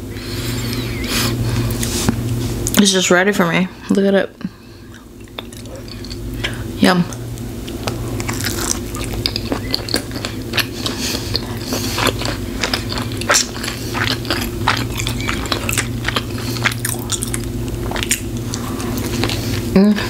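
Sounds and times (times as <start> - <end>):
wet chewing and mouth smacks: 4.9 - 6.3, 7.1 - 19.7.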